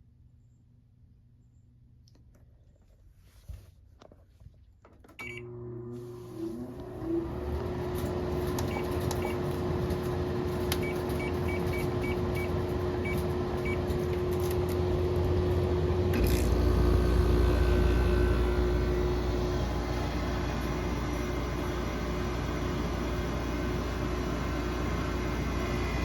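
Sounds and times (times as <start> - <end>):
air conditioner fan hum: 5.2 - 26.0
compressor deep hum: 5.2 - 26.0.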